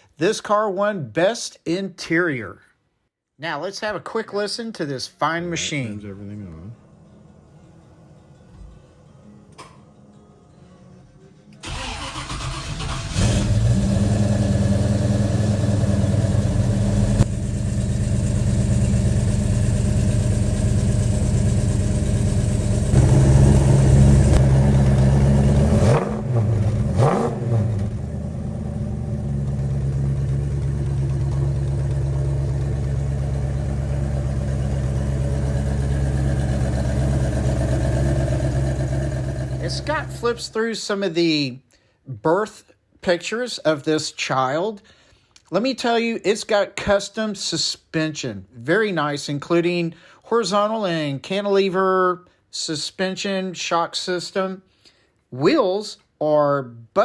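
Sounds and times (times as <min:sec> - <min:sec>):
engine revving: 0:11.6 - 0:40.5
car engine starting and idling: 0:11.6 - 0:40.6.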